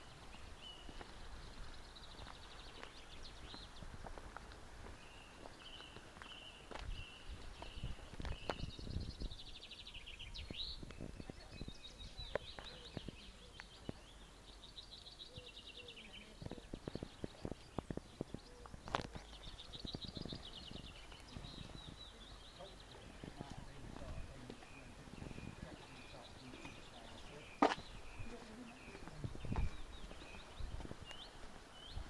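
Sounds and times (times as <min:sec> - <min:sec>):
songbird trilling: 0:05.0 - 0:32.0.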